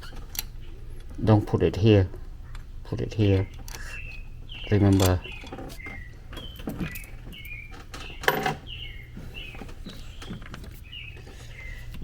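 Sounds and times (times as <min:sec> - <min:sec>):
bird chirping: 0:02.2 - 0:12.0.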